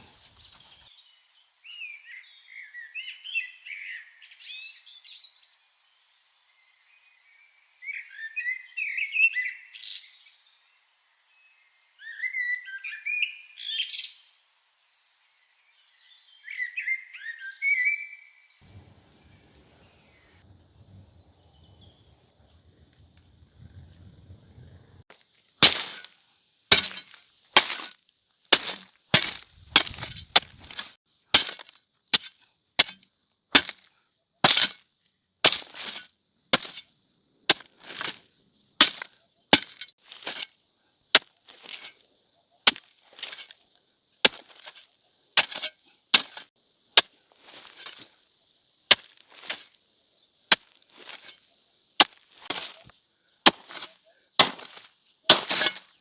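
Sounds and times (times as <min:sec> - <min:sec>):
hand tool chopping: 0:25.6 - 0:34.8, 0:35.4 - 0:36.9, 0:37.5 - 0:38.2, 0:38.8 - 0:40.5, 0:41.2 - 0:42.0, 0:42.7 - 0:43.6, 0:44.2 - 0:48.1, 0:48.9 - 0:49.8, 0:50.5 - 0:52.9, 0:53.5 - 0:56.0.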